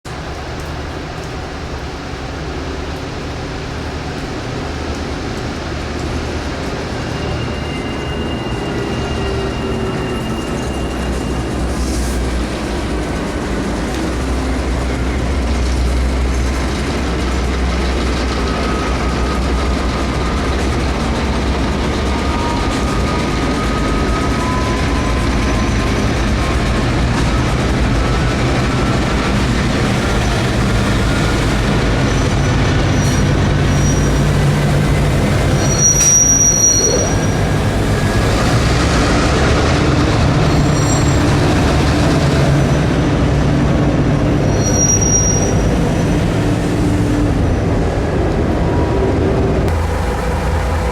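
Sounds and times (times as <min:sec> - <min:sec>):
locomotive engine droning: 0:00.1 - 0:50.9
train wheel squeal: 0:06.2 - 0:43.3, 0:44.3 - 0:47.4.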